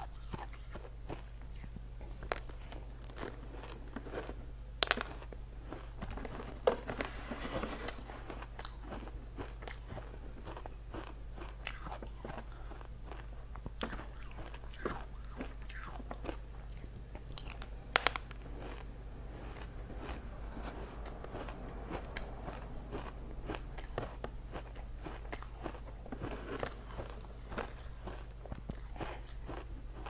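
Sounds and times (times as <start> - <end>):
steady low hum: 0.0 - 30.0
person crunching ice: 2.3 - 6.5, 13.8 - 29.7.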